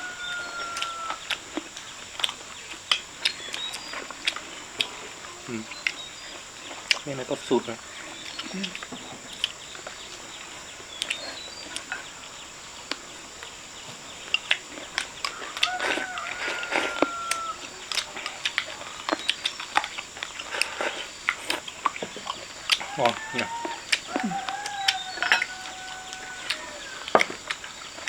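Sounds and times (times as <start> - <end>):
chicken call: 0.0 - 1.3, 15.3 - 17.7, 22.8 - 27.2
crunchy chewing: 0.0 - 28.0
insect hum: 0.0 - 28.0.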